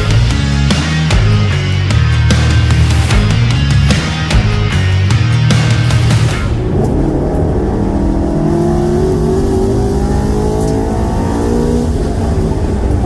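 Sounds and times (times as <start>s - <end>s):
car engine accelerating hard: 5.9s - 13.0s.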